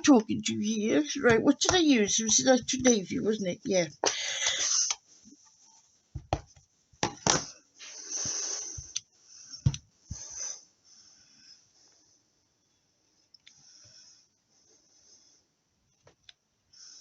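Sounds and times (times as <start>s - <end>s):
craft supplies knocking and clicking: 6.2s - 7.5s.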